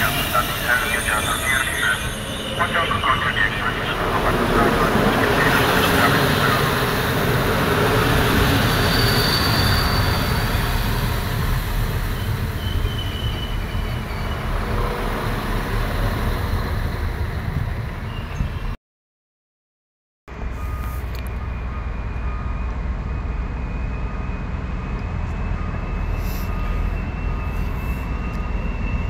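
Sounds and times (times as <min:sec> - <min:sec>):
railcar rumbling past: 0:00.0 - 0:18.8, 0:20.3 - 0:29.0
faint wheel squeals: 0:08.6 - 0:10.8, 0:12.1 - 0:14.6, 0:25.4 - 0:29.0.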